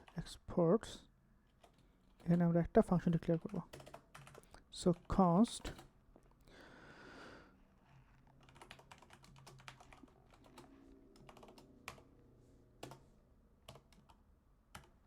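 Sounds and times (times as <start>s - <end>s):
typing on computer keyboard: 3.3s - 5.9s, 8.1s - 12.1s, 12.8s - 13.0s, 13.6s - 15.0s.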